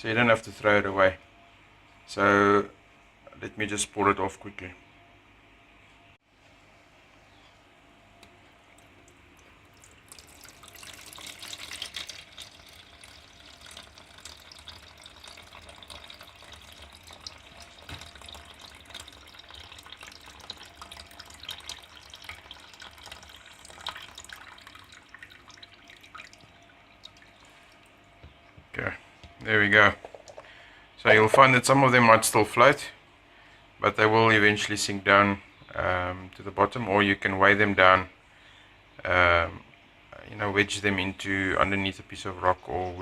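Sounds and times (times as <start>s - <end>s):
water dripping: 8.2s - 28.7s
water pouring and splashing: 8.7s - 28.1s.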